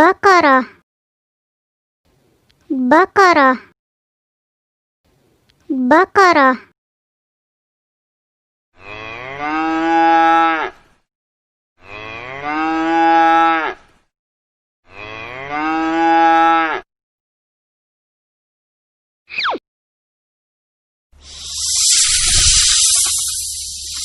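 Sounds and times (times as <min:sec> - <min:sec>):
cow mooing: 0:08.8 - 0:10.7.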